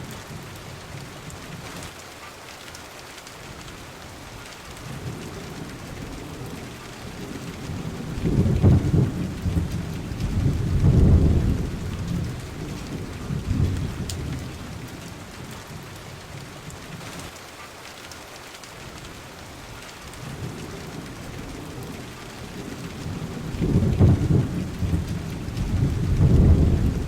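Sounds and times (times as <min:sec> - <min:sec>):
steady rain: 0:00.0 - 0:27.0
thunder rolling: 0:07.6 - 0:14.5, 0:20.4 - 0:27.0.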